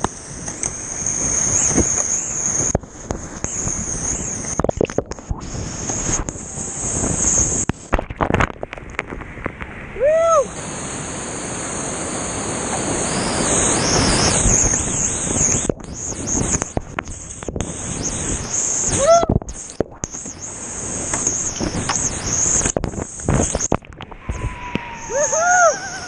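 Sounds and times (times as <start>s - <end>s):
wind buffeting microphone: 0.0s - 10.6s, 11.6s - 20.1s, 20.7s - 26.0s
rushing whitewater: 9.6s - 26.0s.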